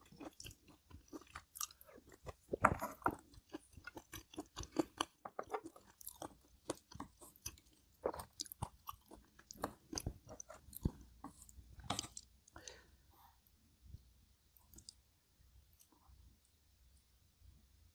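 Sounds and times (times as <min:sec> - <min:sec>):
person chewing food: 0:00.0 - 0:12.9, 0:14.6 - 0:15.1.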